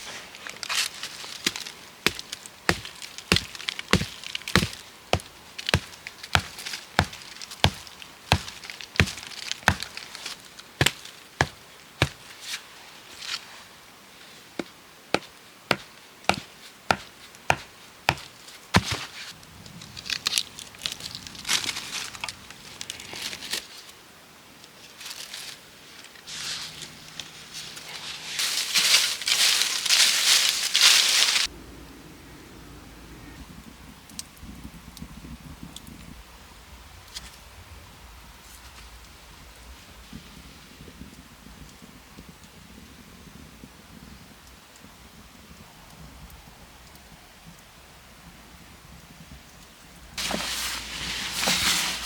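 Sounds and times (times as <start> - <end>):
rustling and crackling: 0.0 - 13.7, 14.6 - 23.9, 24.8 - 31.5, 50.1 - 52.0
tool striking wood: 1.5 - 9.9, 10.8 - 12.2, 15.2 - 19.0.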